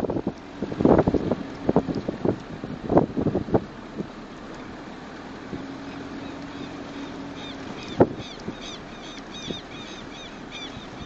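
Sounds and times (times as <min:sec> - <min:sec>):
faint steady hum: 0:00.0 - 0:11.0
wind buffeting microphone: 0:00.0 - 0:11.0
bird chirping: 0:05.8 - 0:11.0.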